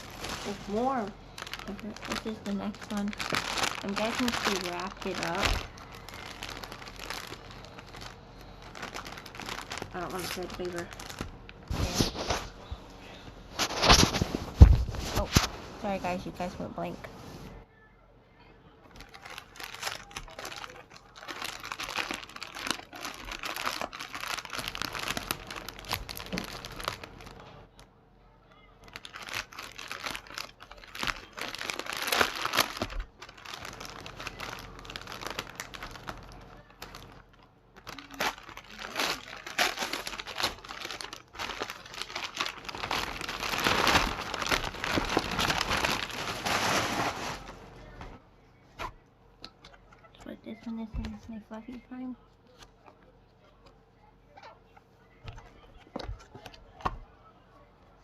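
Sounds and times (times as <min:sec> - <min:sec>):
wrapping paper crinkling: 0:00.0 - 0:16.6, 0:18.9 - 0:27.8, 0:28.6 - 0:48.2.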